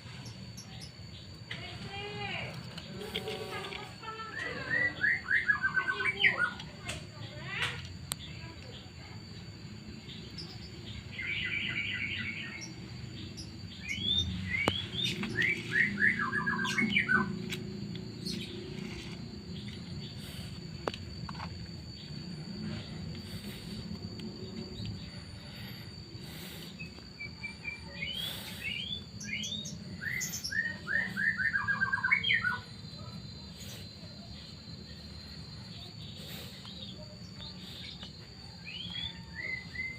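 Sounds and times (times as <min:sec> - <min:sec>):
songbird chirping: 0:00.0 - 0:39.9
low hum: 0:09.3 - 0:31.0.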